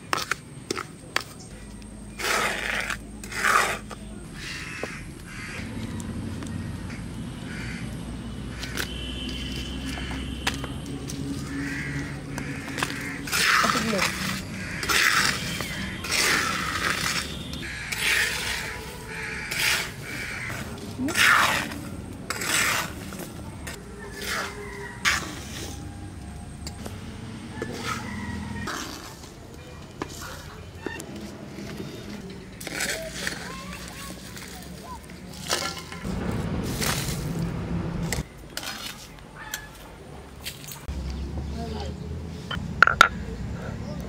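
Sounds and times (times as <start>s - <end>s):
metal spatula scraping sand: 2.1s - 4.6s, 13.2s - 25.8s.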